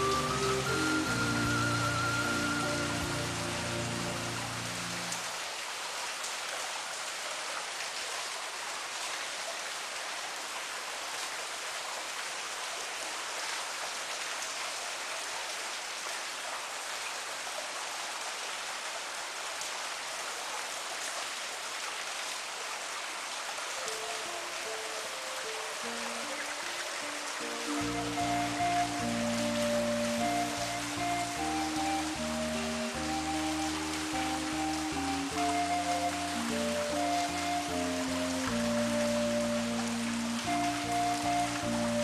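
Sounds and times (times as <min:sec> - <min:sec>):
music: 0:00.0 - 0:05.2, 0:23.8 - 0:42.0
steady rain falling: 0:00.0 - 0:42.0.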